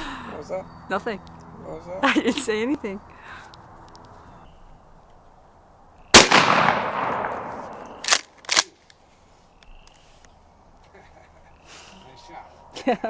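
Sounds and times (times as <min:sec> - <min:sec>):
shotgun blast with echo: 0:06.1 - 0:08.1.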